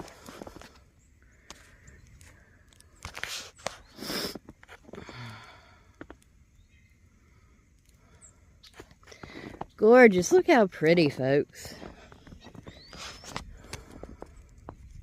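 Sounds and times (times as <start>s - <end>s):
footsteps in snow: 11.6s - 14.8s.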